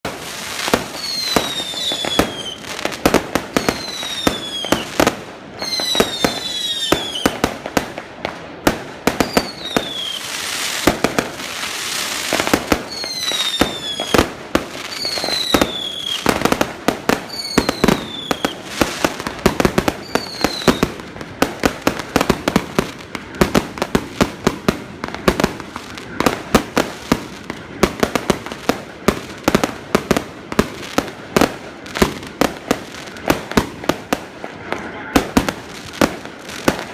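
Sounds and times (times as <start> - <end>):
fireworks bangs and crackles: 0.0 - 36.9
whistling firework shells: 0.7 - 2.7, 3.5 - 4.9, 5.6 - 7.4, 9.1 - 10.8, 12.3 - 21.0
fireworks hissing: 8.8 - 29.8.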